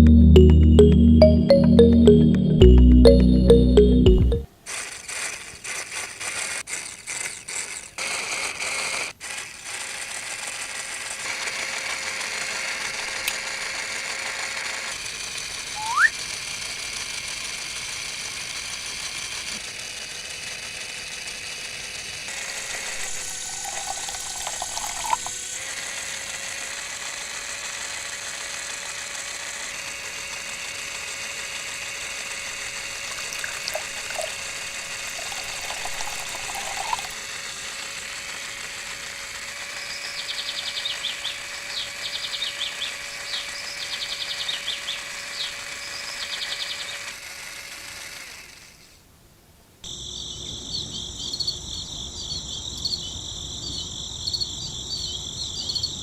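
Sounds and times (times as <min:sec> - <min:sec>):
small motor pump running: 0:04.6 - 0:49.0
liquid flowing hiss: 0:22.6 - 0:25.3, 0:32.6 - 0:37.2.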